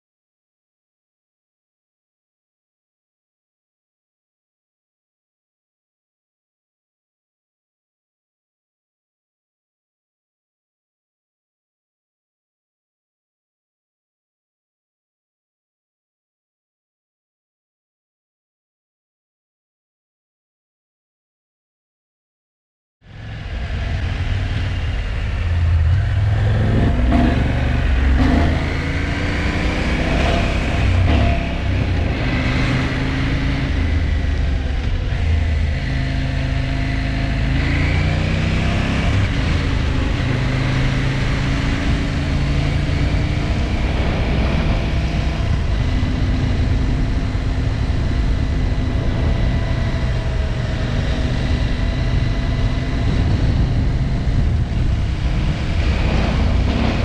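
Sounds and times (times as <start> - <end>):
motorcycle engine running: 23.0 - 57.0.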